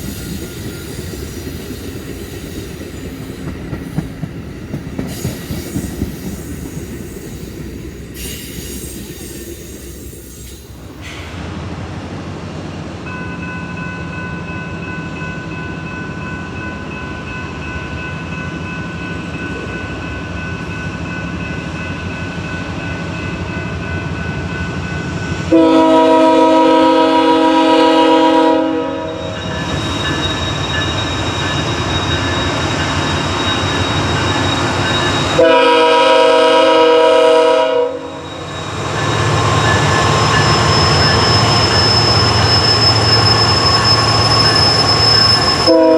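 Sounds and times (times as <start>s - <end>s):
passenger train rumbling past: 0.0s - 45.9s
locomotive horn blasts: 25.5s - 29.3s, 35.3s - 38.2s, 45.7s - 45.9s.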